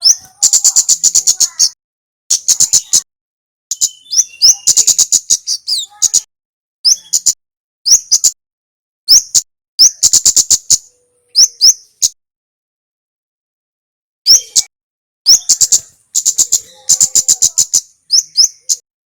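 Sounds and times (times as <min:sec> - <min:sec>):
songbird chip notes: 0:03.7 - 0:06.2.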